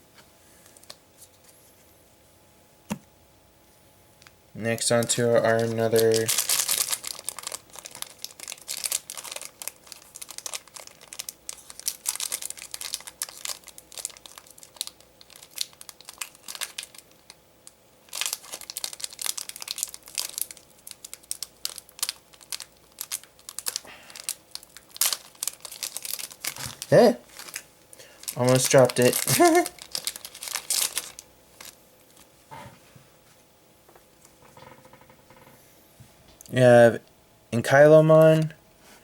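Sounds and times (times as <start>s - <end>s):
plastic wrapper crinkling and tearing: 4.8s - 32.3s.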